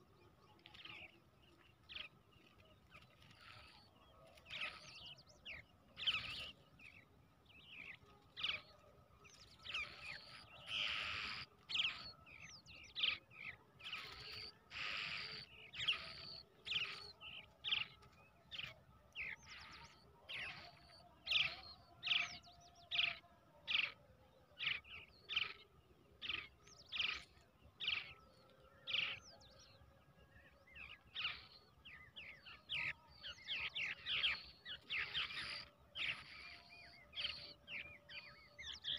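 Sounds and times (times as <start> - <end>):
nestlings begging calls: 9.6 - 12.1, 13.8 - 17.8, 33.8 - 37.6.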